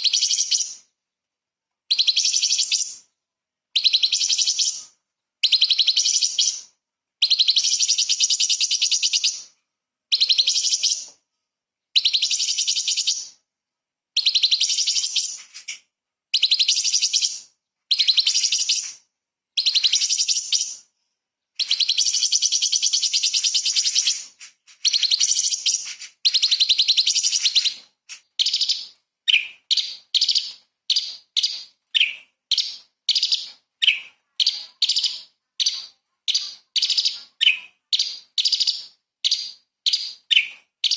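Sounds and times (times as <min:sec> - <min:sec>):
bird singing chattering phrases: 0:00.0 - 0:00.9, 0:01.9 - 0:03.1, 0:03.8 - 0:09.5, 0:10.1 - 0:11.1, 0:14.2 - 0:19.0, 0:19.6 - 0:20.8, 0:21.6 - 0:40.9.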